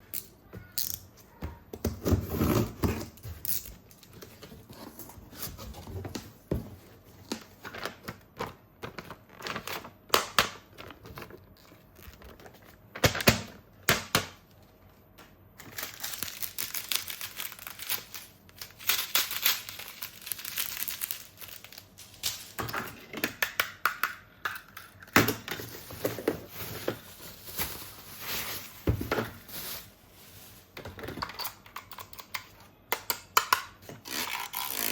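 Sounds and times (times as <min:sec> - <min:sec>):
plastic packaging crinkling and tearing: 0:15.6 - 0:22.6, 0:25.3 - 0:31.3.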